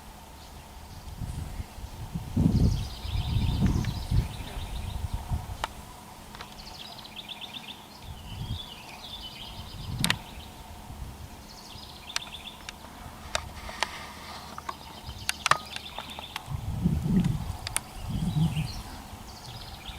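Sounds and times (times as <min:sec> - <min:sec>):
small birds singing trills: 0:00.0 - 0:19.9
sharp clicks: 0:14.5 - 0:16.5.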